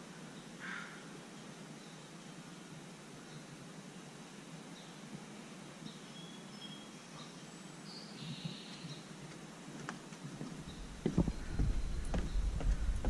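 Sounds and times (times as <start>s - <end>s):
steady outdoor hiss: 0.0s - 13.0s
faint bird chirps and whistles: 5.8s - 9.1s
soft footsteps: 9.7s - 13.0s.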